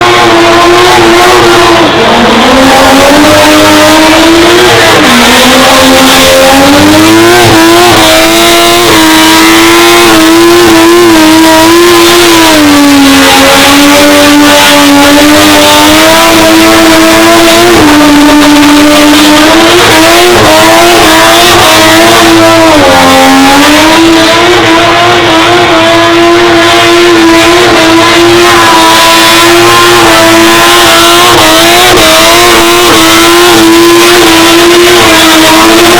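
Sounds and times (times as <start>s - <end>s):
rotary engine revving high: 0.0s - 35.9s.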